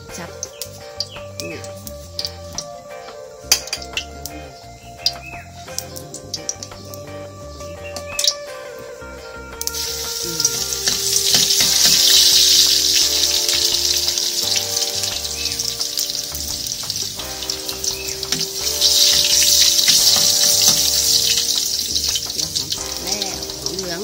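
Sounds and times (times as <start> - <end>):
food sizzling in hot oil: 0.1 - 2.7, 9.7 - 24.0.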